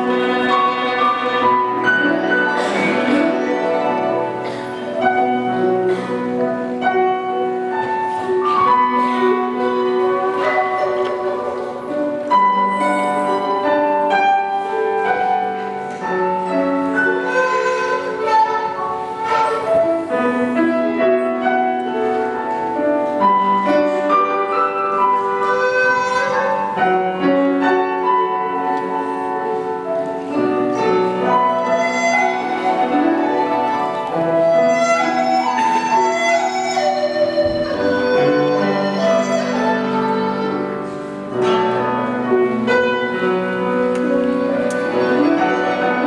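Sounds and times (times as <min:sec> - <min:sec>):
bamboo flute melody: 0:00.0 - 0:46.0
musical accompaniment: 0:00.0 - 0:46.0.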